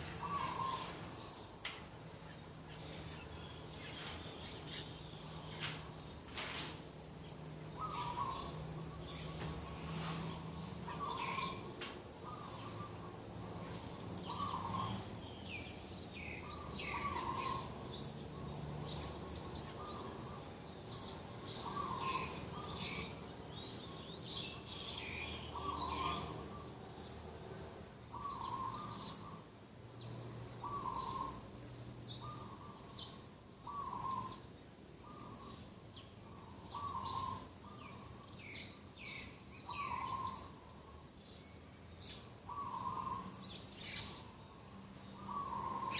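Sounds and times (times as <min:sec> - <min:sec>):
small birds chirping: 0:00.0 - 0:45.9
dove cooing: 0:00.1 - 0:01.0, 0:30.6 - 0:31.4.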